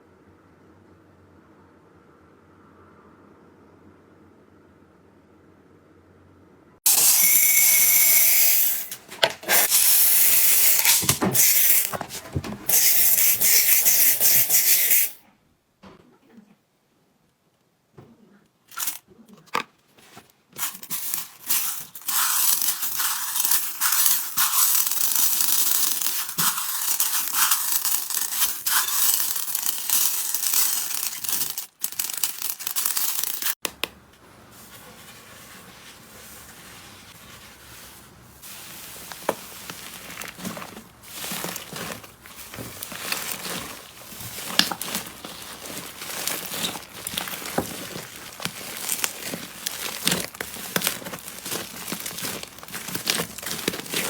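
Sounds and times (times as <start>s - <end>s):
slime crackling: 38.8s - 54.0s.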